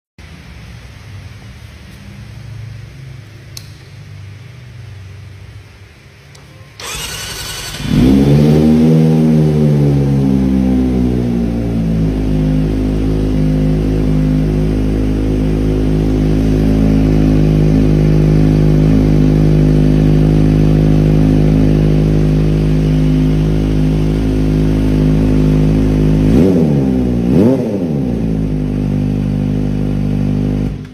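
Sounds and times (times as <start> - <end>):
engine throttle blips: 6.3 - 30.9.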